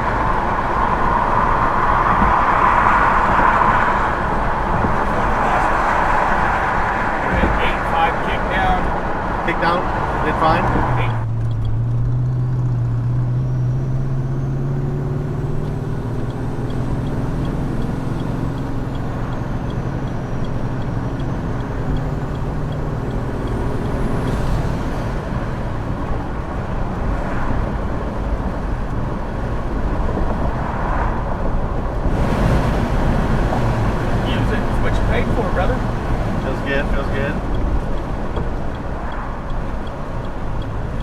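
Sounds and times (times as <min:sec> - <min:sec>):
car engine hum: 0:00.0 - 0:41.0.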